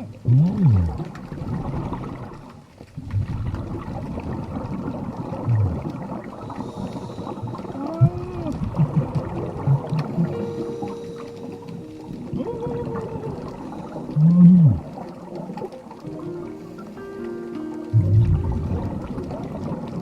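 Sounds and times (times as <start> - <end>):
underwater bubbles gurgling: 0.0 - 20.0
moan-like tones: 7.6 - 15.0, 17.9 - 19.3
low thumps: 17.9 - 19.4.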